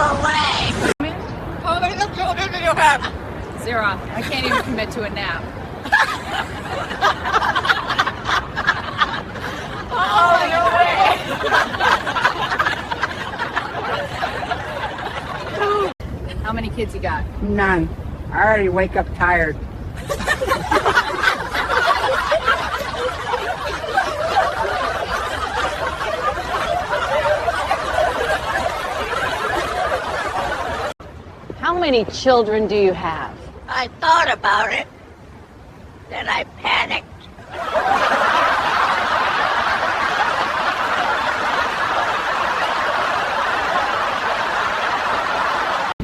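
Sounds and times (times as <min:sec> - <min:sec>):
people laughing: 0:04.2 - 0:05.1, 0:05.8 - 0:16.0, 0:20.0 - 0:31.0, 0:37.4 - 0:46.0.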